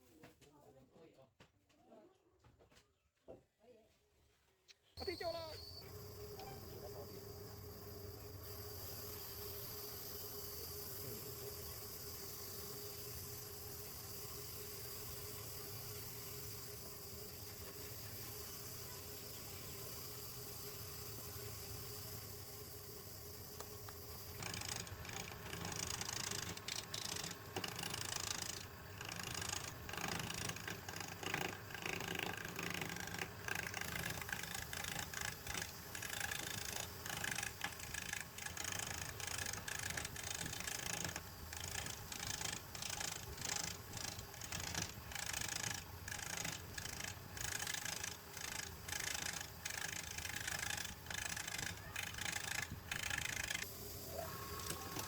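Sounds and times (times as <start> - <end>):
lathe tool scraping wood: 23.8 - 53.7.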